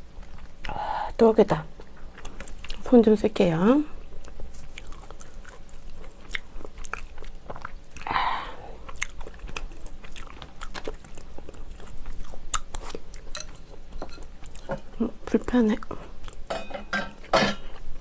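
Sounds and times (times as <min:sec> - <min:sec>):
person biting and chewing: 0:04.2 - 0:13.4.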